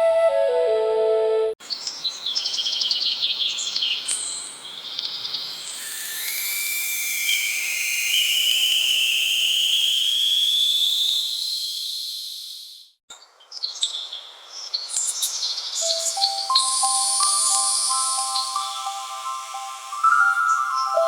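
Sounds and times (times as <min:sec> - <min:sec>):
simple electronic melody: 0:00.0 - 0:01.6, 0:15.9 - 0:21.0
scattered chirps: 0:04.1 - 0:12.8, 0:14.9 - 0:21.0
high insect-like call rising in pitch: 0:05.3 - 0:12.9, 0:15.0 - 0:21.0.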